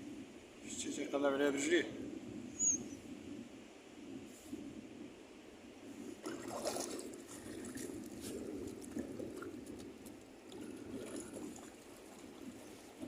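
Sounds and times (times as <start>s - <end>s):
dog splashing in shallow water: 6.2s - 13.0s.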